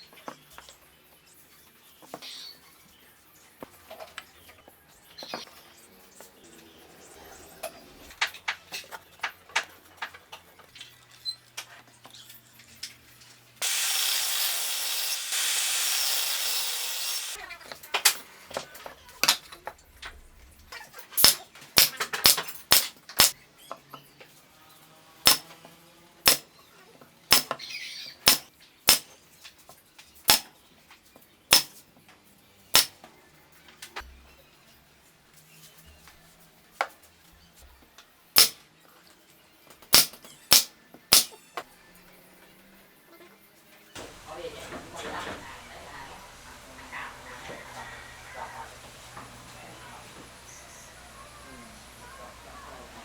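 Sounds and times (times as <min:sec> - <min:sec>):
faint background music: 0:00.0 - 0:13.6, 0:17.4 - 0:53.0
rasping power tool: 0:13.6 - 0:17.4.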